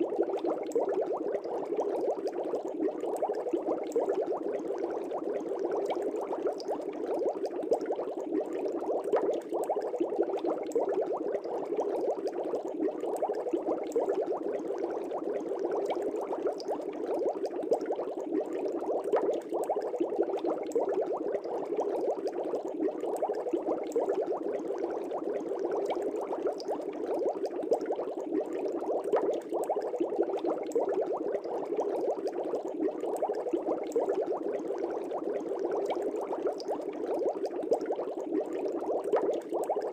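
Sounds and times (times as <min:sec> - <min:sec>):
aquarium air bubbles burbling: 0:00.0 - 0:39.9.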